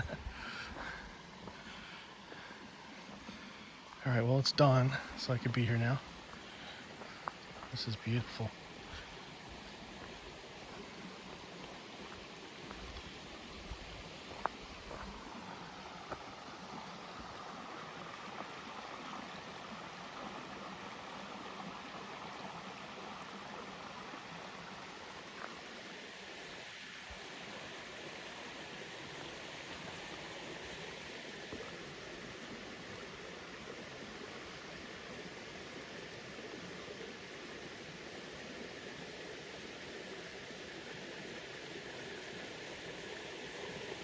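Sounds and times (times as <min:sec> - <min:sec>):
creek water flowing: 0:00.0 - 0:44.0.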